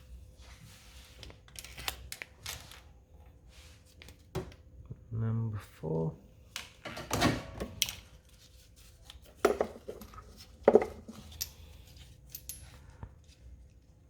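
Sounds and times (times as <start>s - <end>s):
metal tools clinking and knocking: 9.5s - 12.9s.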